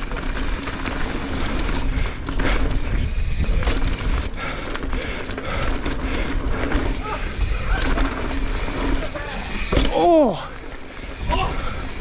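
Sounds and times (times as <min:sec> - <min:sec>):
bike tyres rumbling on dirt: 0:00.0 - 0:12.0
wind buffeting microphone: 0:01.4 - 0:04.5, 0:05.4 - 0:09.7.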